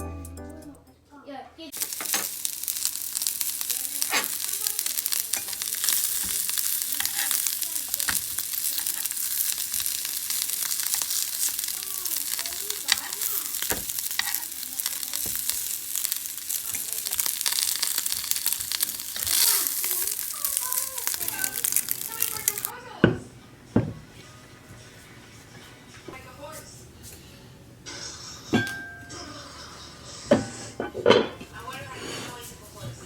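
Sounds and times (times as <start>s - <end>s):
food sizzling in a frying pan: 1.7s - 22.8s.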